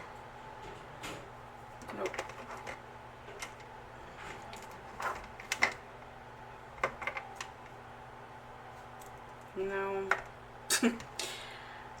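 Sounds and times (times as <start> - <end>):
faint steady hum: 0.0 - 12.0
tape rolls clicking and knocking: 1.8 - 6.0, 6.7 - 7.8.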